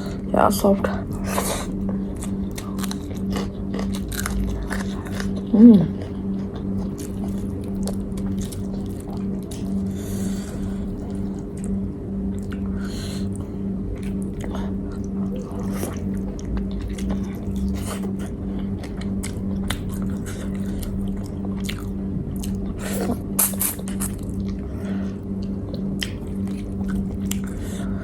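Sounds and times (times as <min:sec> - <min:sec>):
low hum: 0:00.0 - 0:28.0
chewing food: 0:00.9 - 0:28.0.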